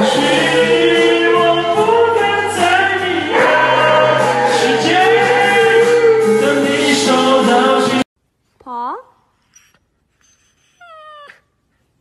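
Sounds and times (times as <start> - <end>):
karaoke music with steady bass: 0.0 - 8.1.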